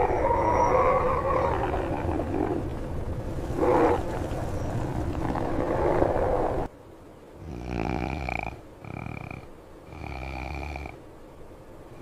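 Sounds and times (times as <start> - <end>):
wolf howling: 0.0 - 2.7.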